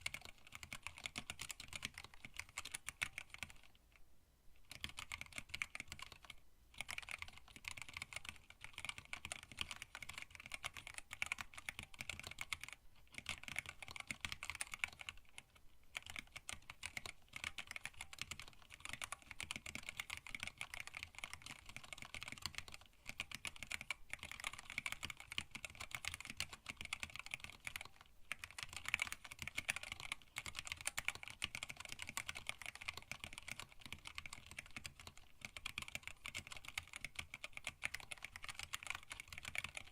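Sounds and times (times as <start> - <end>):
mechanical keyboard typing: 0.0 - 3.8, 4.6 - 39.9.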